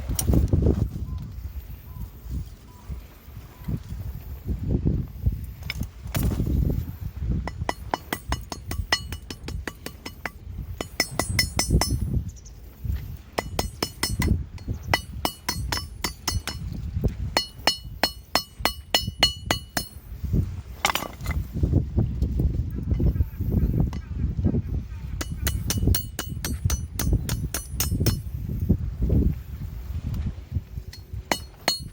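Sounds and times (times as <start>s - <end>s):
hammer striking steel on anvil: 7.4s - 12.1s, 13.4s - 16.7s, 17.4s - 20.0s, 25.2s - 28.3s, 30.9s - 31.9s.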